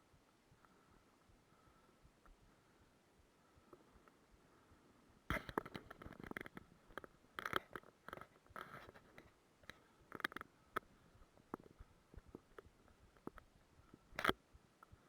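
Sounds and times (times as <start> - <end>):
irregular clicks of handling: 5.3 - 10.9, 11.5 - 14.9
rustling and crinkling: 5.3 - 14.4.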